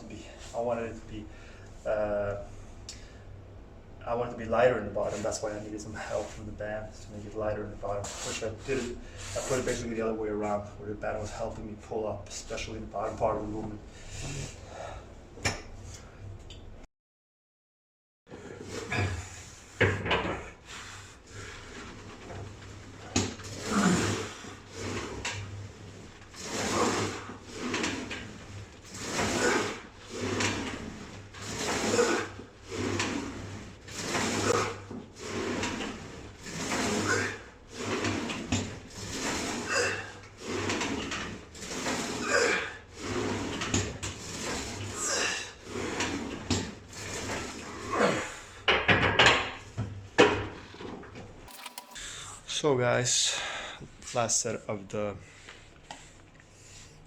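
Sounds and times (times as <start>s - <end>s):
weight machine sled sliding and knocking: 4.8s - 10.2s, 21.3s - 48.3s, 51.5s - 52.0s.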